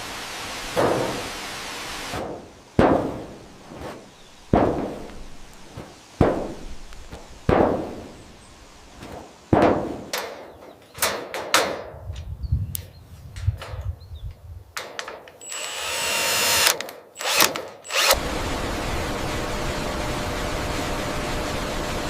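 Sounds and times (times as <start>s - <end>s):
sharp knocks: 2.2s - 3.3s.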